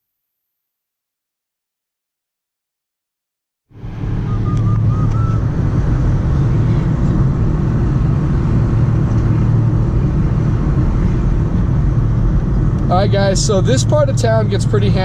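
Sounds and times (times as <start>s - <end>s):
car engine hum: 3.7s - 15.0s
road noise: 3.7s - 15.0s.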